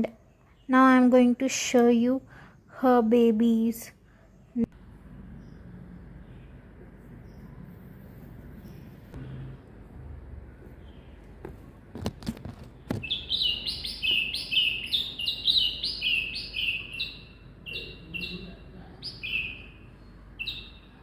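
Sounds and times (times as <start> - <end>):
baby birds chirping: 12.9 - 21.0.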